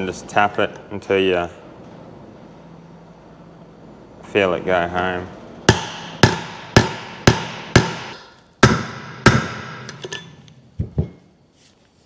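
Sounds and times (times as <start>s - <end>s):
hammer striking steel plate: 5.7s - 10.4s.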